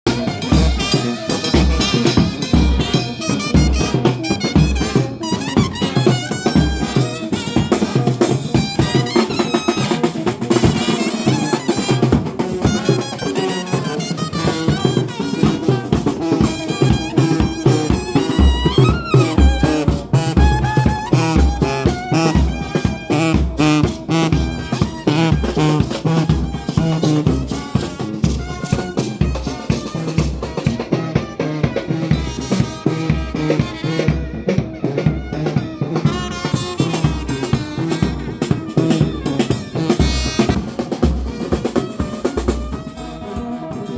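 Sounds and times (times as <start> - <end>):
brass band playing: 0.0 - 43.9
bass drum beat: 0.1 - 13.2, 13.9 - 43.6
snare drum beat: 0.1 - 43.5.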